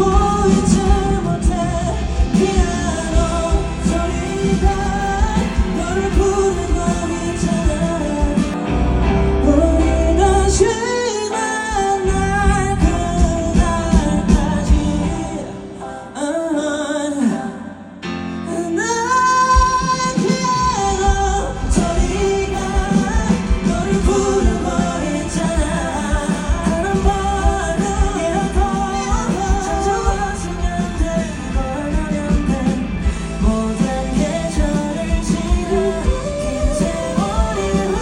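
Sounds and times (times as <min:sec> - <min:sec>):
live pop-rock band: 0:00.0 - 0:38.0
person singing: 0:00.0 - 0:38.0.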